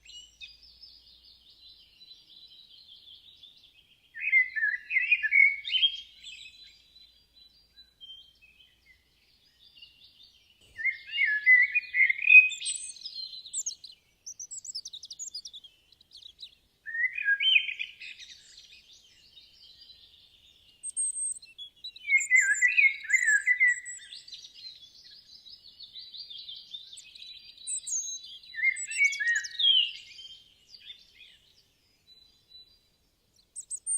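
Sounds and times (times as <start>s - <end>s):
birds chirping: 7.9s - 33.9s.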